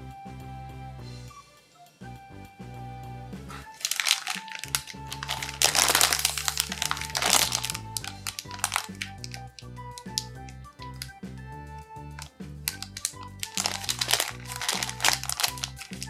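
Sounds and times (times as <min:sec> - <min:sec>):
background music: 0:00.0 - 0:16.0
loud crinkling: 0:03.7 - 0:10.4, 0:12.2 - 0:16.0.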